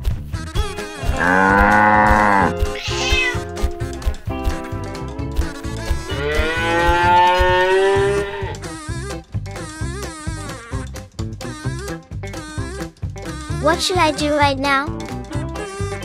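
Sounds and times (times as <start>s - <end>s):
light plucked background music: 0.0s - 16.0s
cow mooing: 1.1s - 2.5s, 6.1s - 8.6s
cat meowing: 2.6s - 3.5s.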